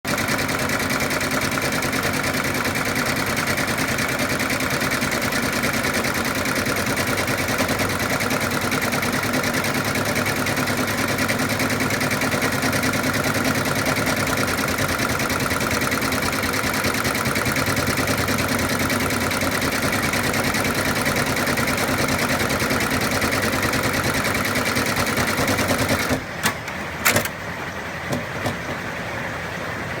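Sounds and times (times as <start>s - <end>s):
embroidery machine stitching: 0.1s - 29.0s
sharp clicks: 26.4s - 27.4s.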